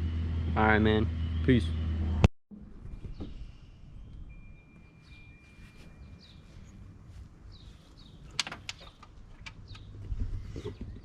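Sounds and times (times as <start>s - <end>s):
faint steady high tone: 2.8s - 6.8s
small birds chirping: 3.0s - 11.0s
sharp clicks: 8.3s - 9.9s.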